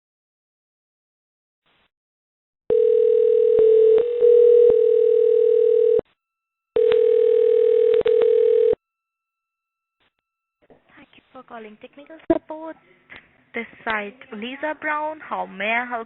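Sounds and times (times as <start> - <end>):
telephone tone: 2.7 - 6.1, 6.8 - 8.8
phone line clicks: 6.8 - 8.8.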